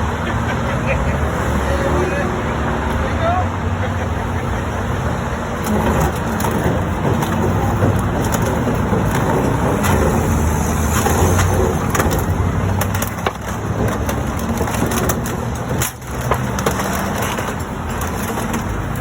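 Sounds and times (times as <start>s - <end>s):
truck engine running: 0.0s - 19.0s
car body cracking and crunching: 5.5s - 19.0s.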